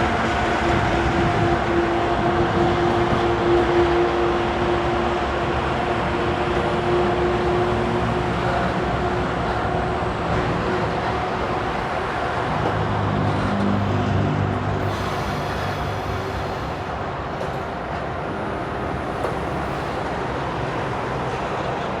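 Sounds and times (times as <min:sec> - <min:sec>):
diesel freight train rumbling past: 0:00.0 - 0:22.0.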